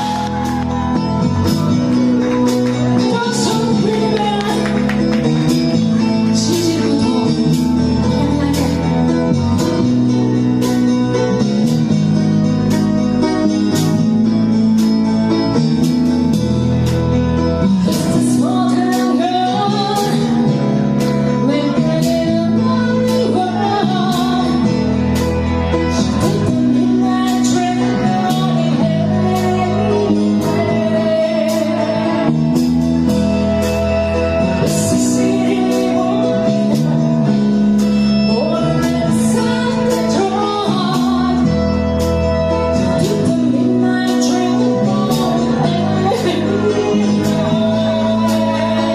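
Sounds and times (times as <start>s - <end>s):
person singing: 0.0s - 11.4s, 17.6s - 48.9s
guitar: 0.0s - 48.9s.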